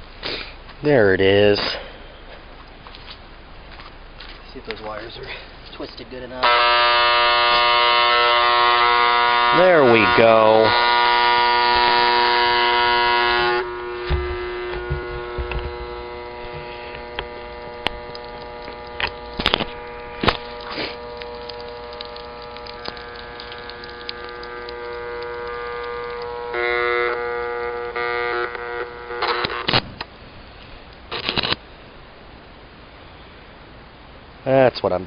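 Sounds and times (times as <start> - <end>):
vacuum cleaner motor whine: 6.4 - 29.7
sharp clicks and snaps: 16.9 - 26.4.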